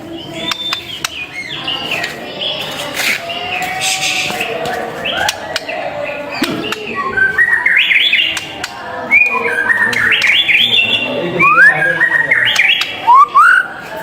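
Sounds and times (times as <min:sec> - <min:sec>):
bird singing whistled song: 0:00.1 - 0:02.6, 0:06.3 - 0:13.8.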